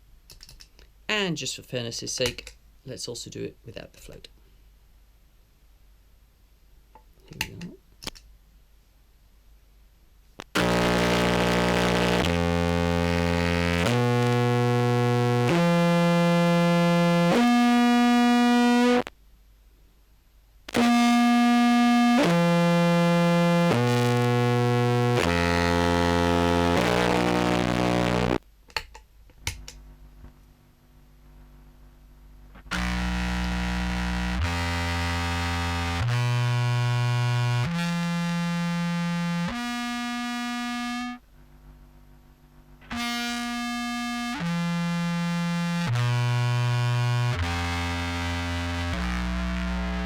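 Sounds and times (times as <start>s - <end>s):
distorted buzzy clarinet notes: 10.4s - 19.1s, 20.7s - 28.4s, 32.6s - 41.2s, 42.8s - 50.0s.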